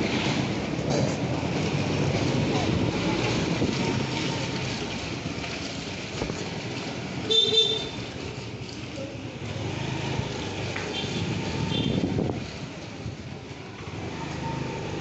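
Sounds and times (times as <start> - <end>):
scooter engine: 0.0 - 15.0
street traffic: 0.0 - 15.0
vehicle horn honking: 7.3 - 8.0, 11.0 - 12.0.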